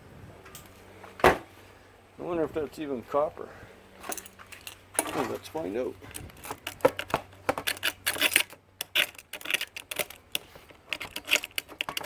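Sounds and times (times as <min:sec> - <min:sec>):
hand tools clicking and tapping: 0:06.0 - 0:12.0.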